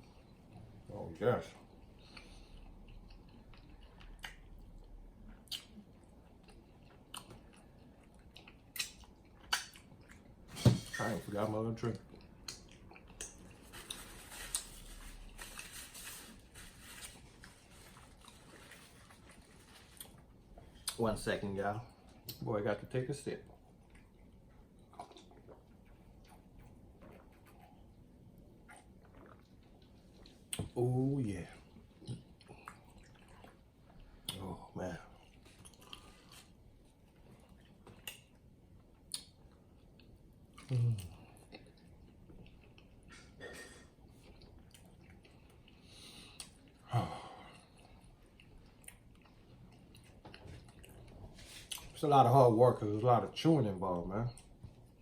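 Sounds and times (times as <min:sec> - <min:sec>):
wet mouth clicks: 0:05.4 - 0:05.8, 0:08.8 - 0:09.8
crinkly rustling: 0:13.5 - 0:20.3.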